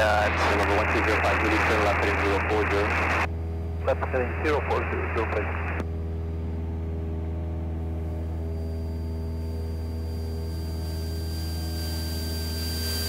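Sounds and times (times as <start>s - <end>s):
airplane engine droning: 0.0s - 13.0s
faint high whine: 0.0s - 13.0s.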